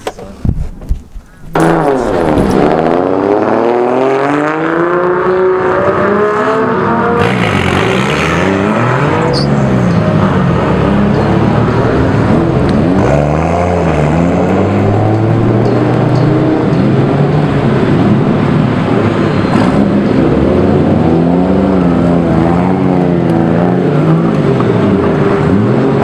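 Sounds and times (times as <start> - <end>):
car engines idling with throttle blips: 6.6 - 26.0.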